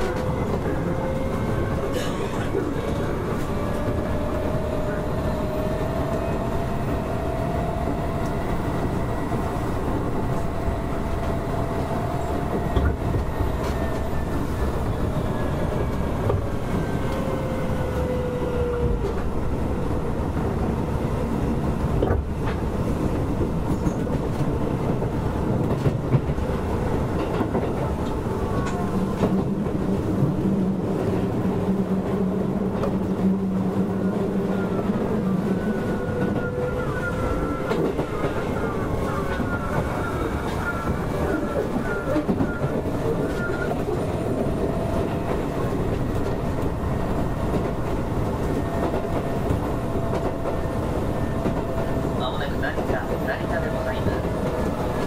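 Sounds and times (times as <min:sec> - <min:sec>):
train wheels rumbling on rail: 0:00.0 - 0:55.0
rail-joint clicks: 0:12.2 - 0:14.3.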